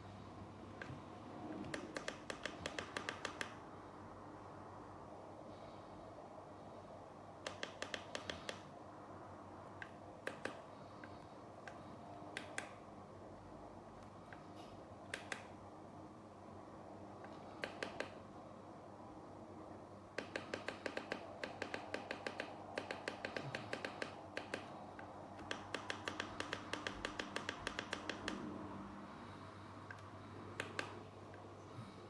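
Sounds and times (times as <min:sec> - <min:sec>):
rapid sharp clicks: 0:01.6 - 0:03.6, 0:07.4 - 0:08.7, 0:09.7 - 0:12.8, 0:15.1 - 0:15.6, 0:17.2 - 0:18.2, 0:20.1 - 0:28.5, 0:29.1 - 0:31.5.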